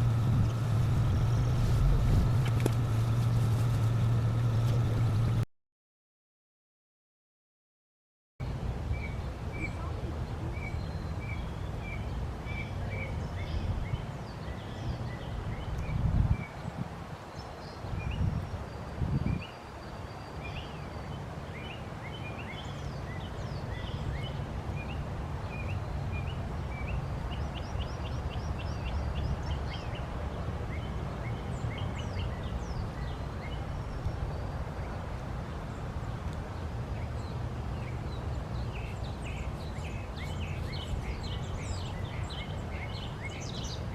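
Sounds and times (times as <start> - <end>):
songbirds chirping: 0.0 - 5.4, 8.4 - 43.9
steady low rumble: 0.0 - 5.4.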